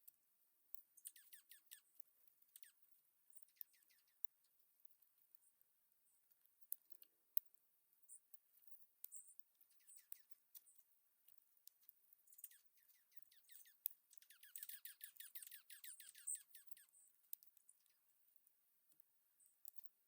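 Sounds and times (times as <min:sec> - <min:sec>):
faint clicks: 0:06.3 - 0:15.6, 0:16.2 - 0:20.0.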